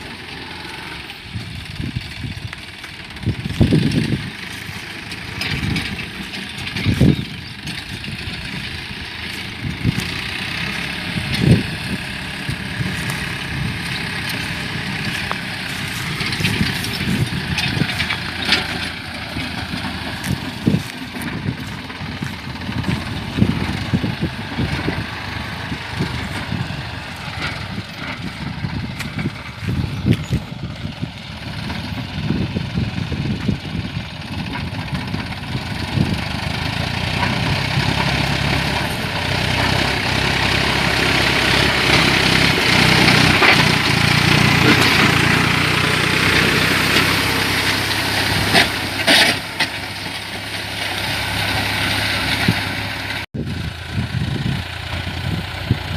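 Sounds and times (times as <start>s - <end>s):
tractor diesel engine under load: 0.0s - 55.9s
plough knocks and clatter: 2.5s - 30.6s, 34.3s - 52.8s.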